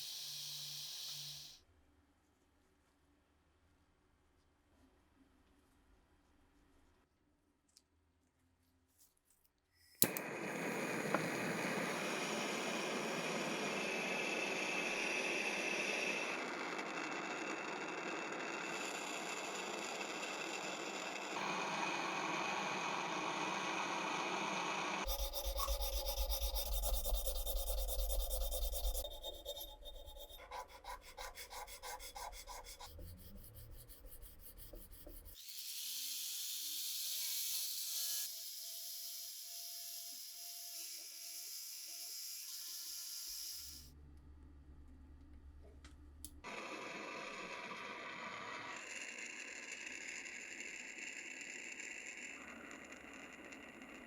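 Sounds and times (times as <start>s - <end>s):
low hum: 10.0s - 35.3s
rubbing and scraping: 25.0s - 35.4s.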